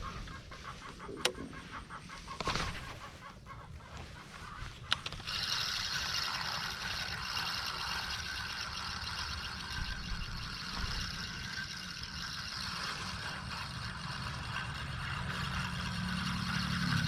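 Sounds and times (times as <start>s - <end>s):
click: 1.2s - 1.4s
fishing reel whirring: 4.4s - 17.0s.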